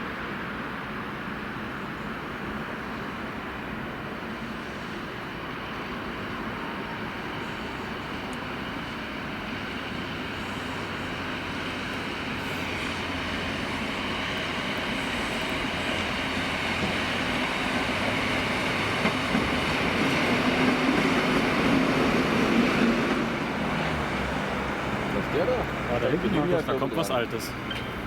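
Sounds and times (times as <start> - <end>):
train running on rails: 0.0 - 28.0.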